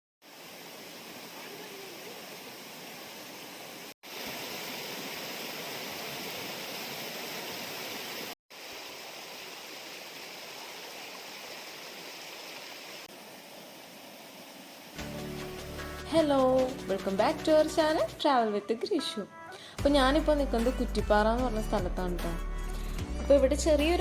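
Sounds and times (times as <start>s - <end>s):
small waterfall rushing: 0.2s - 18.2s.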